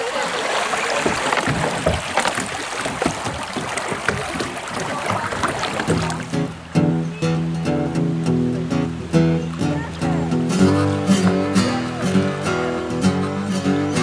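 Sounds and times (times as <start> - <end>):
paddle splashing in water: 0.0 - 14.0
acoustic guitar music: 5.8 - 14.0.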